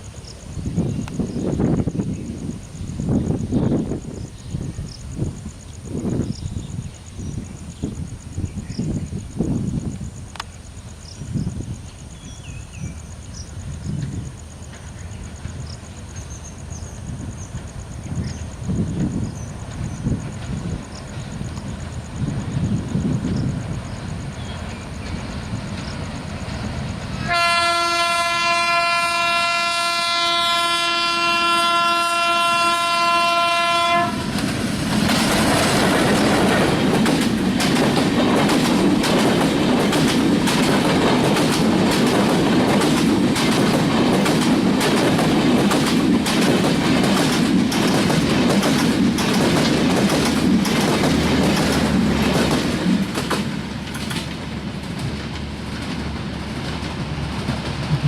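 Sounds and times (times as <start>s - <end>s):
train wheels clacking on rails: 13.8s - 28.9s, 32.8s - 58.0s
locomotive horn blast: 27.2s - 34.4s.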